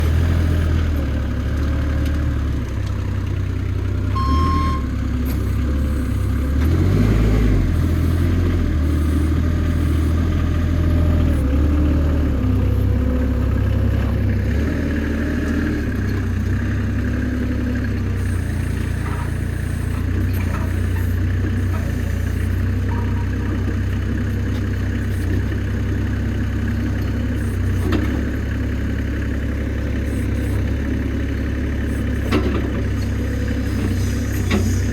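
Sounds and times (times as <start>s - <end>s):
forklift engine running: 0.0s - 34.9s
short high beep: 4.2s - 4.9s.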